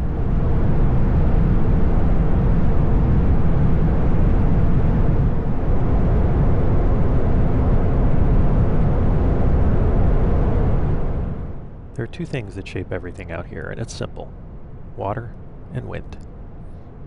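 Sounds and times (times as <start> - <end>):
wind noise on microphone: 0.0 - 11.8.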